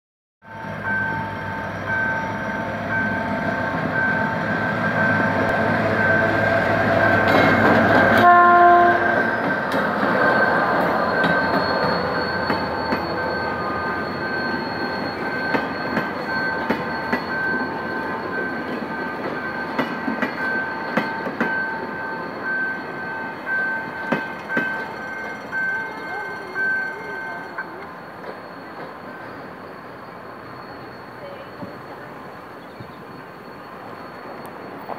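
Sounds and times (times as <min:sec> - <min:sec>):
level crossing bell beeping: 0:00.5 - 0:08.6, 0:10.3 - 0:32.5
diesel locomotive engine running: 0:00.5 - 0:34.9
train horn blast: 0:08.1 - 0:09.3.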